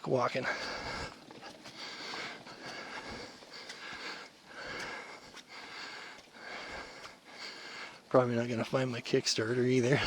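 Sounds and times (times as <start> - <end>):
person breathing hard: 0.4 - 8.1.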